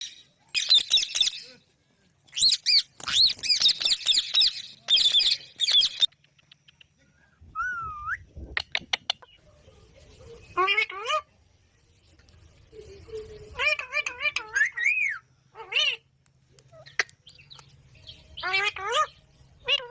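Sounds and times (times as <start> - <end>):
parakeets screeching: 2.3 - 6.1, 10.5 - 11.3, 13.2 - 16.1, 18.0 - 19.9
sharp clicks: 6.0 - 7.0.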